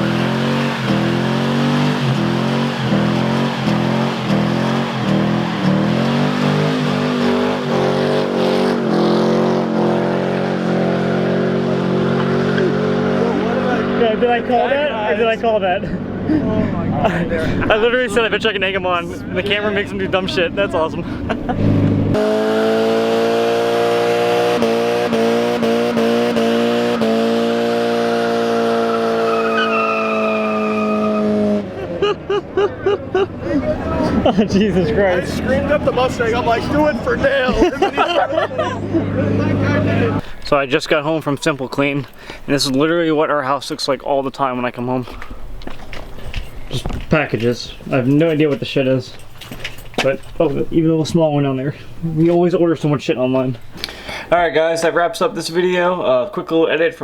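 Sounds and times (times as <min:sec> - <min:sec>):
car engine revving: 0:00.0 - 0:14.9, 0:21.1 - 0:32.0, 0:33.3 - 0:40.3
tyre squeal: 0:28.7 - 0:31.5.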